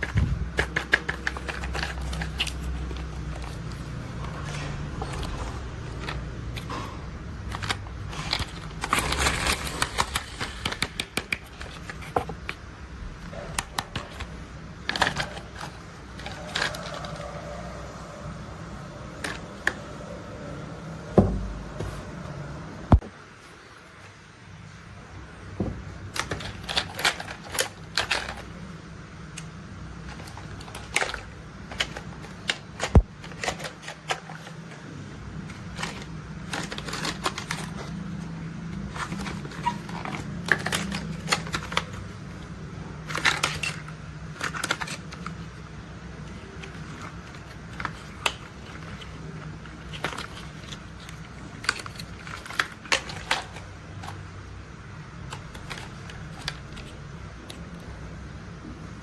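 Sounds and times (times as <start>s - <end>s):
plastic toys clicking and tapping: 0.0s - 12.6s, 13.2s - 17.6s, 26.0s - 28.6s, 29.3s - 34.8s, 35.4s - 54.3s.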